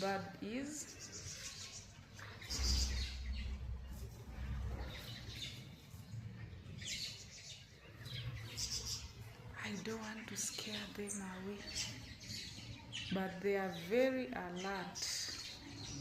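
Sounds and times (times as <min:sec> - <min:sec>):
wild birds chirping: 0:00.0 - 0:16.0
low rumble: 0:02.5 - 0:06.8.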